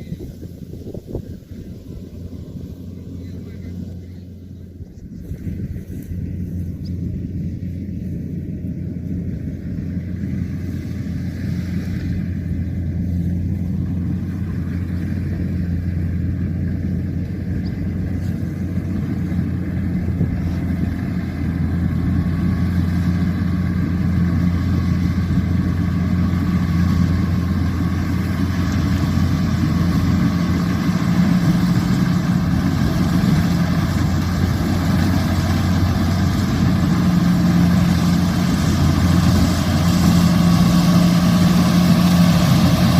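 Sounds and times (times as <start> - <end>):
combine harvester engine humming: 0.0 - 42.9.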